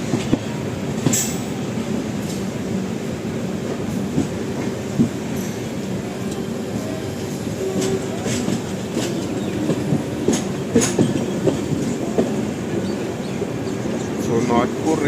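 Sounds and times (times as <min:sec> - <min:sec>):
train rumbling: 0:00.0 - 0:15.0
wheels clicking over rails: 0:07.8 - 0:12.4.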